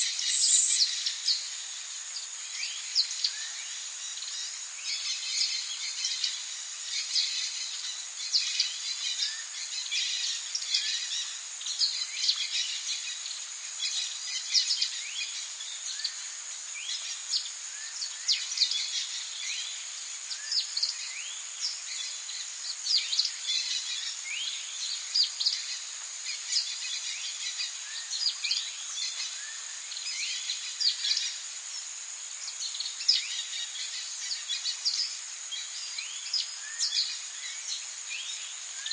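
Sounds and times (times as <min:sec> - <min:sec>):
birds chirping: 0:00.0 - 0:00.9
high-pitched insect drone: 0:00.0 - 0:01.1.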